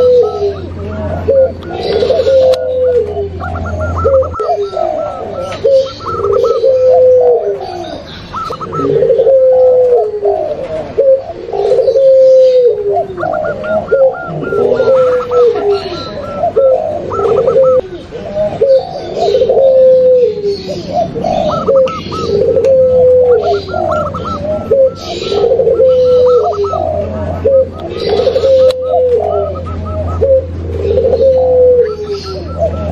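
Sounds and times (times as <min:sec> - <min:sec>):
doves cooing: 0:00.0 - 0:32.9
quick trilling bird phrases: 0:00.0 - 0:32.9.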